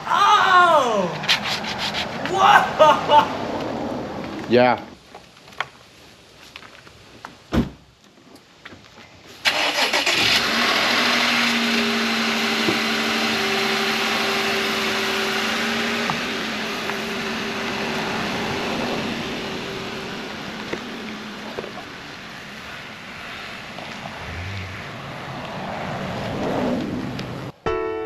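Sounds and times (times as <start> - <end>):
engine starting and running: 9.4 - 16.8.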